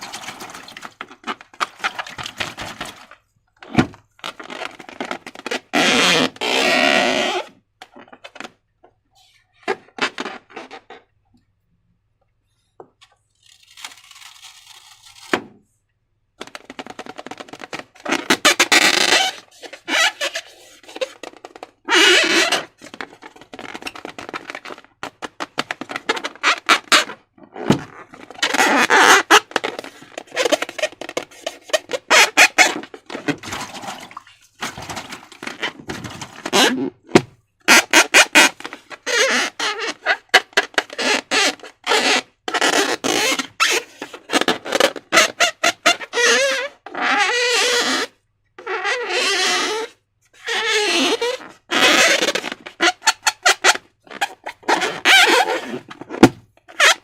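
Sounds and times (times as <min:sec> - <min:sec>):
slime squelching by hand: 0:33.1 - 0:35.8.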